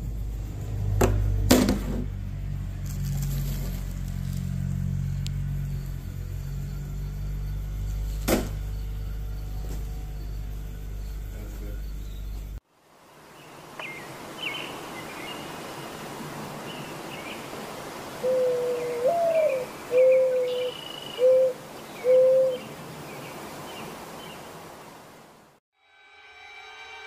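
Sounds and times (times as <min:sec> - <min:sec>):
steady outdoor hiss: 0:00.0 - 0:25.6
high bird chirps: 0:19.2 - 0:21.4.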